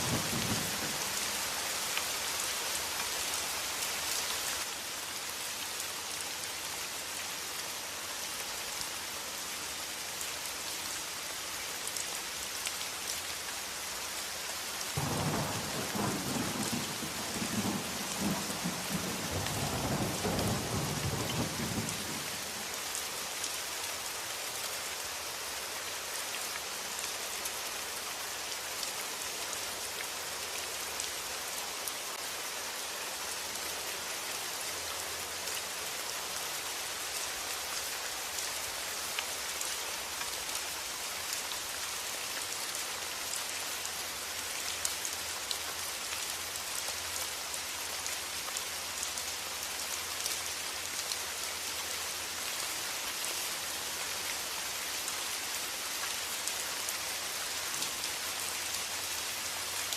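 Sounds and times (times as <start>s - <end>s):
steady rain hiss: 0.0s - 59.9s
thunder rumbling: 15.0s - 22.4s.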